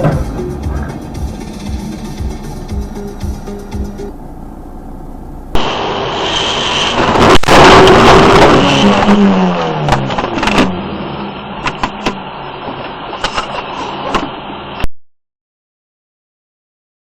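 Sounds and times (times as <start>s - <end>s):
road and vehicle noise: 0.0s - 14.9s
loud scraping crash: 5.6s - 10.9s.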